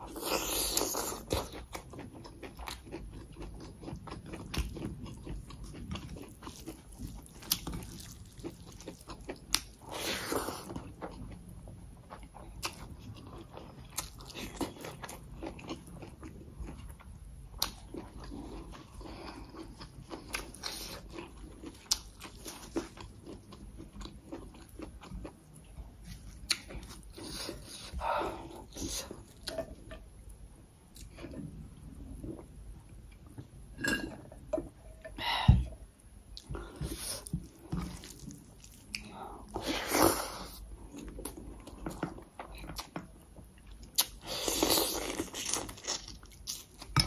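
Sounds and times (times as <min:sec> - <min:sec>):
chewing and mouth sounds: 0:00.1 - 0:29.9.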